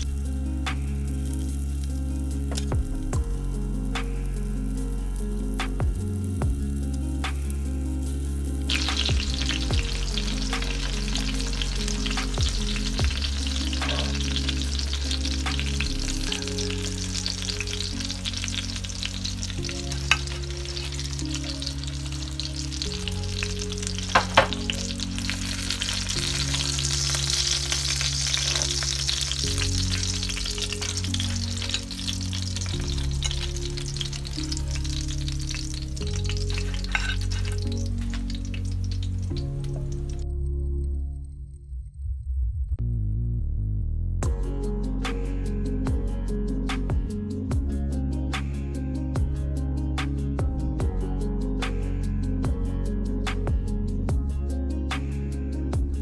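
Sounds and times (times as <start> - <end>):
chicken sizzling in oil: 0.0 - 40.2
background music with low notes: 0.0 - 56.0.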